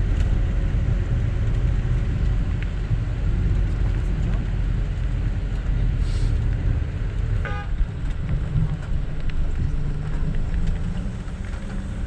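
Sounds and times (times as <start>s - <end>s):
bus engine and tyres rumbling: 0.0s - 12.0s
bus horn toot: 7.4s - 7.8s.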